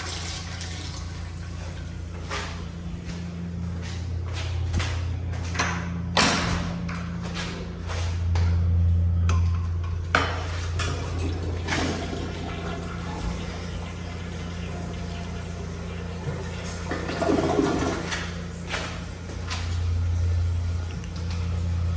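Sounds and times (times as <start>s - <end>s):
toilet flush click: 0.0s - 1.8s, 10.8s - 19.8s
water rushing and refilling: 0.0s - 2.0s, 10.7s - 21.9s
low hum: 0.0s - 21.9s.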